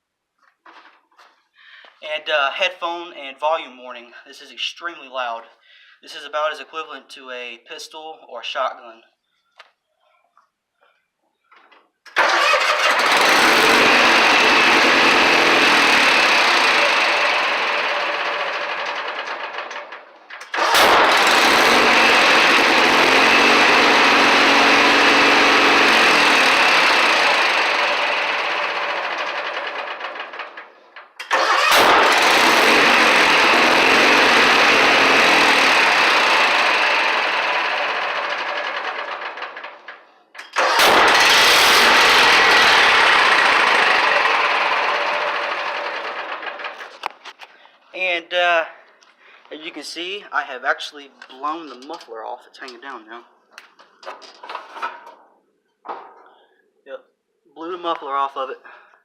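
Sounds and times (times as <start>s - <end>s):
lawn tractor engine running: 12.1s - 47.3s
exhaust backfire: 12.2s - 30.6s, 31.3s - 39.8s, 40.6s - 46.9s
engine backfire bang: 20.5s - 23.0s, 31.2s - 34.5s, 40.6s - 43.8s.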